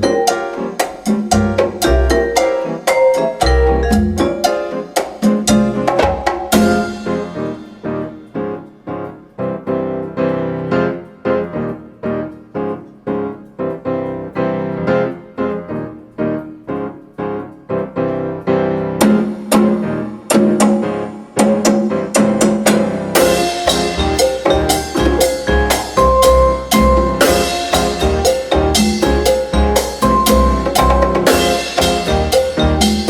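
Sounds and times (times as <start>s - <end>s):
piano playing chords: 0.0s - 33.0s
drums and cymbals: 0.3s - 8.0s, 19.0s - 33.0s.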